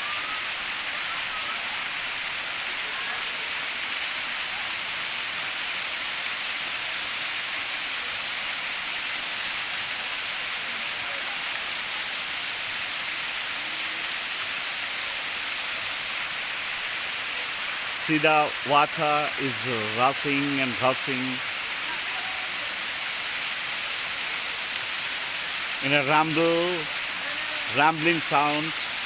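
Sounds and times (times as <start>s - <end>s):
waterfall roaring: 13.6s - 29.0s.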